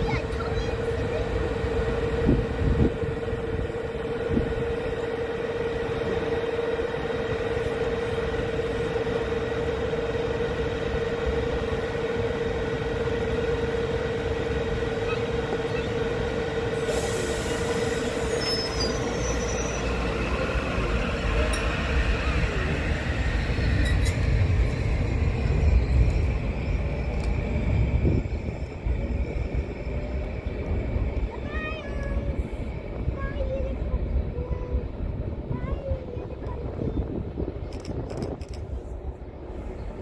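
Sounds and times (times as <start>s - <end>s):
train whine and rumble: 0.0s - 40.0s
high hiss: 16.8s - 20.0s.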